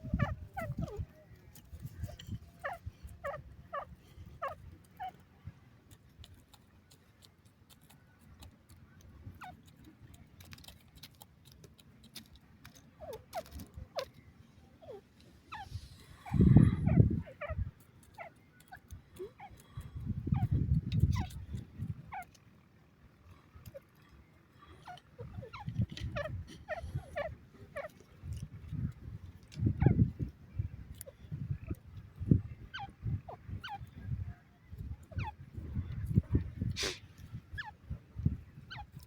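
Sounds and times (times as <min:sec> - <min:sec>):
francolin calling: 0:00.0 - 0:01.4, 0:02.0 - 0:05.2, 0:14.8 - 0:21.4, 0:24.8 - 0:27.9, 0:38.6 - 0:39.0.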